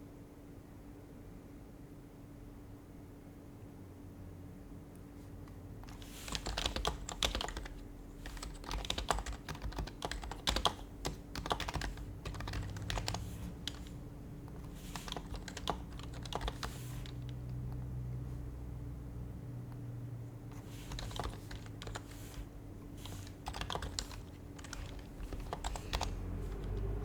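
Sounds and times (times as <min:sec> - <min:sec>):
faint low hum: 0:00.0 - 0:27.0
keyboard typing: 0:05.8 - 0:17.9, 0:20.5 - 0:27.0.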